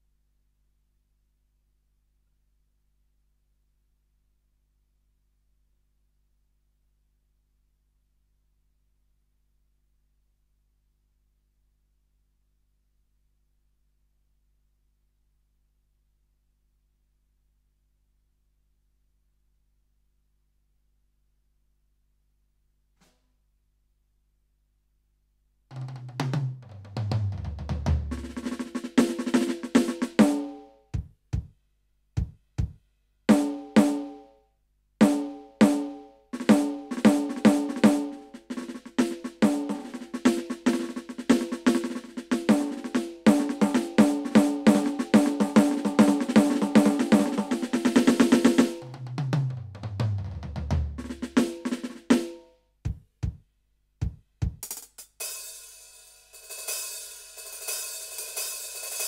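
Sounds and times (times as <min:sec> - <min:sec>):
electronic tom fill: 0:35.0 - 0:52.3
electronic snare roll: 0:36.5 - 0:48.9
electronic cymbals: 0:55.2 - 0:59.0.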